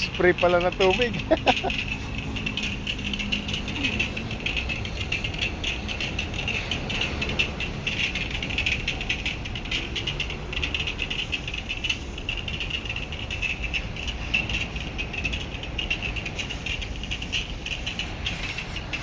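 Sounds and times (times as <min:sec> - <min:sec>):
low background rumble: 0:00.0 - 0:19.0
insects trilling: 0:00.8 - 0:04.3.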